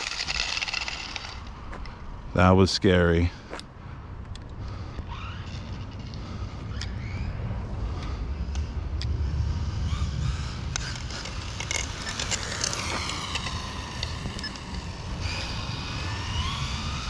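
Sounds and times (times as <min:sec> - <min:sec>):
rc truck motor whine: 0:00.0 - 0:01.9, 0:04.6 - 0:17.0
low rumble: 0:03.7 - 0:17.0.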